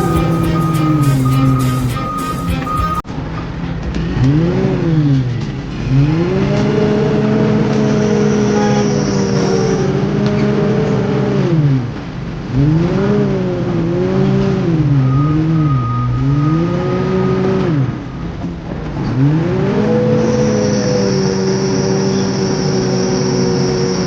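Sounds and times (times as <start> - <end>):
heavy machine diesel engine revving: 0.0 - 3.0.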